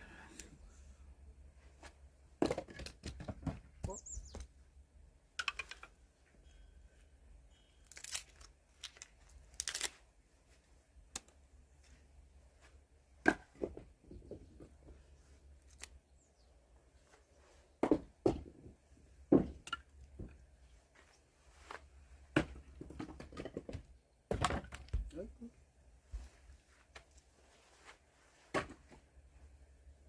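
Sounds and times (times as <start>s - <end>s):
rustling and tearing: 7.9s - 10.1s.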